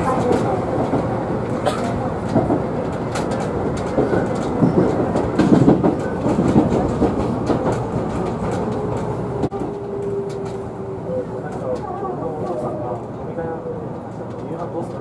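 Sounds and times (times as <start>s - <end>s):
train wheels clicking over rail joints: 0.0s - 10.6s.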